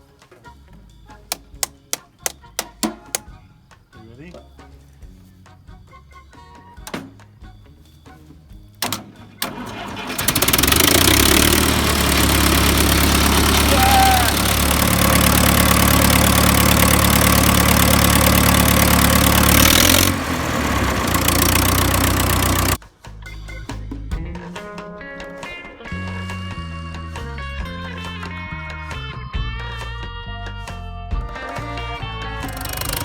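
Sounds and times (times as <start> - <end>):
starter clicks: 8.8 - 22.8, 32.4 - 33.0
tractor engine running: 8.8 - 22.8, 30.4 - 33.0.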